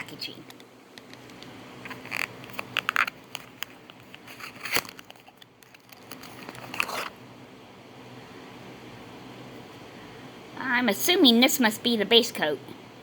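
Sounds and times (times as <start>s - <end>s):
crinkling rustles: 1.8s - 7.2s.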